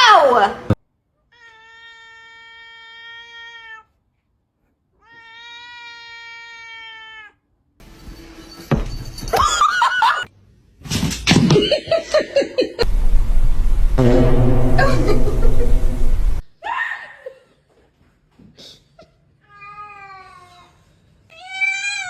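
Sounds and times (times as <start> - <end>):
cat crying: 1.3 - 3.9, 5.0 - 7.4
cat meowing: 1.3 - 4.0, 5.0 - 7.4.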